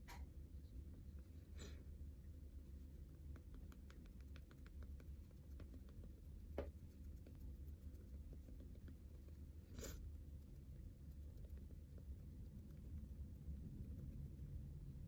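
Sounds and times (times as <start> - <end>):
low steady hum: 0.0 - 15.0
small clicks and soft taps: 2.9 - 9.5.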